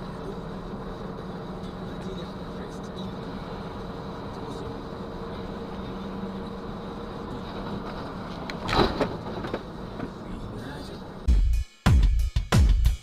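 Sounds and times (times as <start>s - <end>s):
car running and road noise: 0.0s - 11.3s.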